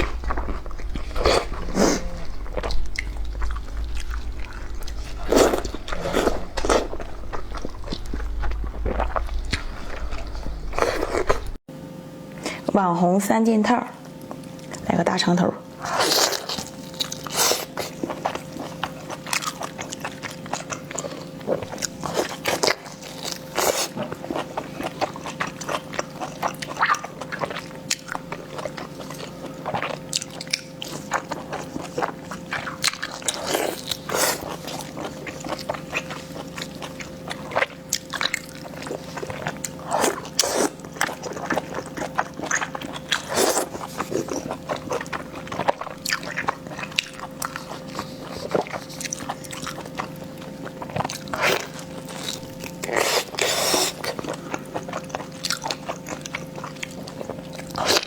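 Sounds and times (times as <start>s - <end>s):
chewing with mouth clicks: 0.0s - 11.6s, 23.5s - 58.0s
faint steady hum: 0.0s - 11.6s.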